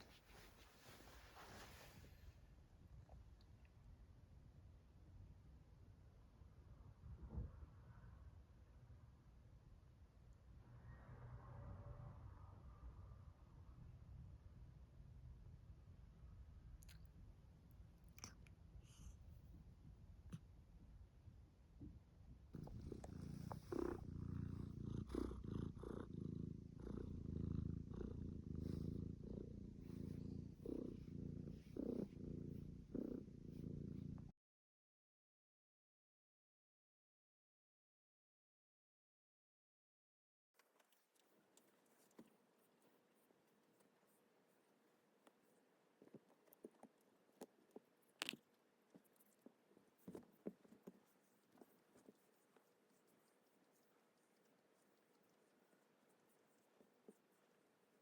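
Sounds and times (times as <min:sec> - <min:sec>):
cat purring: 0:18.0 - 0:19.4, 0:22.5 - 0:34.3, 0:40.9 - 0:58.0.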